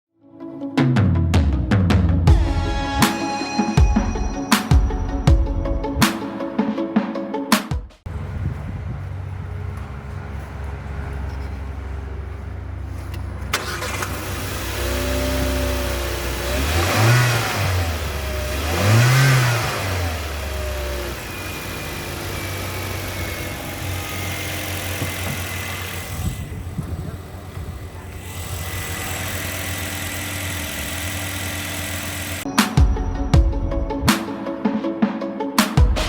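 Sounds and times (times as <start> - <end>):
car engine idling: 8.1 - 32.5
car engine revving: 8.1 - 32.5.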